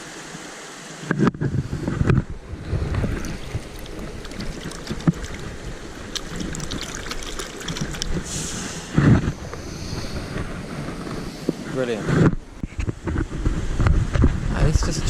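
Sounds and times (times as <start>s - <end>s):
stream water trickling: 0.0s - 10.4s
wind buffeting microphone: 1.3s - 15.0s.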